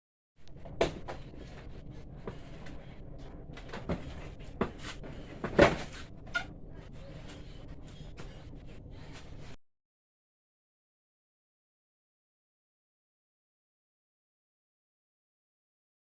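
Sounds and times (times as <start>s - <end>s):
steady low hum: 0.4s - 9.6s.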